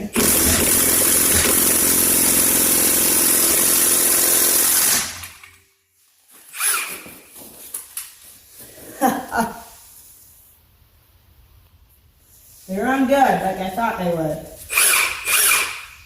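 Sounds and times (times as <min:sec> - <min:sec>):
impact wrench hammering: 0:00.2 - 0:05.6.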